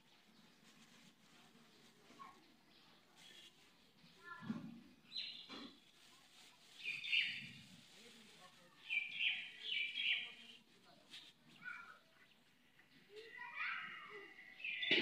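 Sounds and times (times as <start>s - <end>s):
birds chirping: 6.8s - 7.6s, 8.8s - 10.6s, 11.5s - 15.0s.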